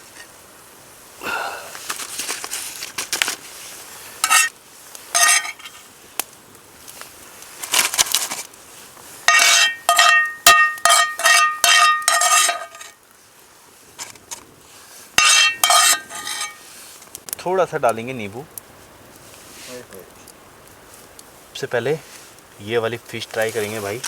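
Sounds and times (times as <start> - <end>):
metal utensil scraping metal pan: 4.2 - 4.5, 5.1 - 5.8, 9.3 - 13.0, 15.2 - 16.6.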